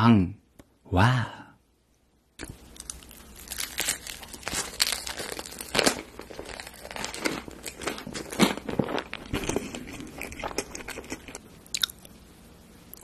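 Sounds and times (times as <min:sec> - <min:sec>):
crunchy chewing: 0:02.4 - 0:12.1.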